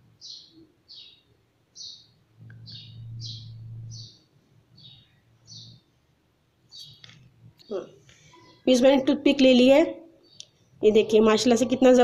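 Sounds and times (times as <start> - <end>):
bird chirping: 0.0 - 6.0, 6.7 - 9.2, 10.1 - 12.0
low hum: 2.4 - 4.2.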